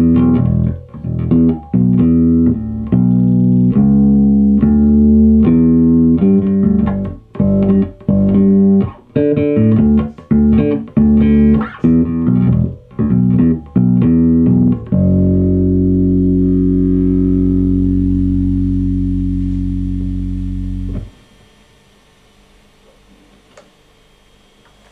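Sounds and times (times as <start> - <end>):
plucked bass guitar notes: 0.0 - 21.5.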